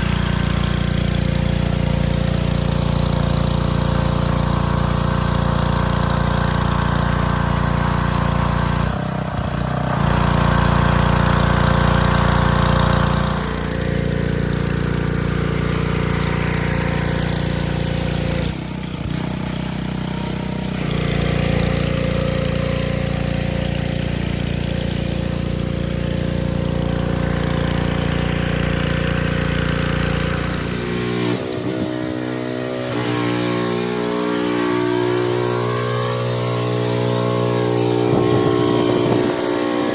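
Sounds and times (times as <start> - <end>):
pressure washer engine running: 0.0 - 39.9.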